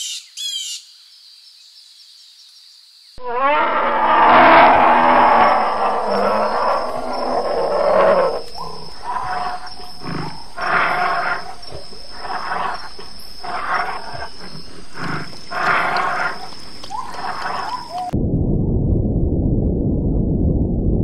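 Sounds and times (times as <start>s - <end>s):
bear growling: 3.2s - 18.2s.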